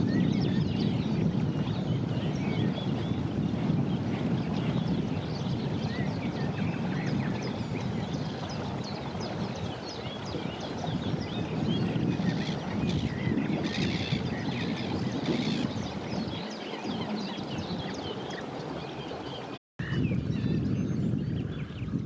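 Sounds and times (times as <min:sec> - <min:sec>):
small birds chirping: 0:04.5 - 0:20.7.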